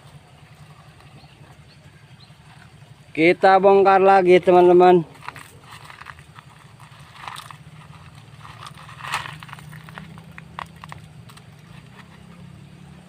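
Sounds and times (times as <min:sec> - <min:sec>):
soft rustling scrapes: 0:05.1 - 0:12.4.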